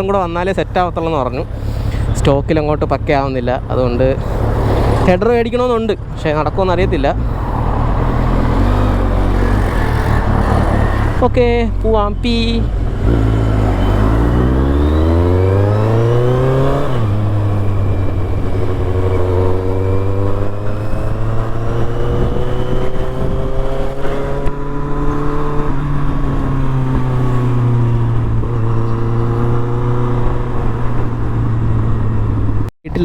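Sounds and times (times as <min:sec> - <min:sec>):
motorcycle engine revving: 0:06.6 - 0:32.7.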